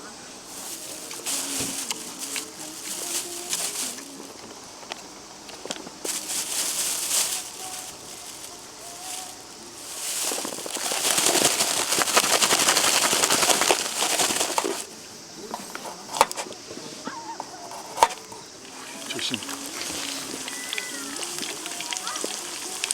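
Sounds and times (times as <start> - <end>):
food sizzling in hot oil: 18.7 - 22.9.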